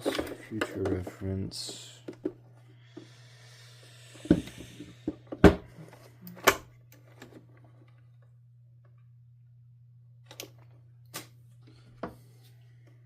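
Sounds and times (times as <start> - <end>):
hard parts knocking and clicking: 0.0 - 2.4.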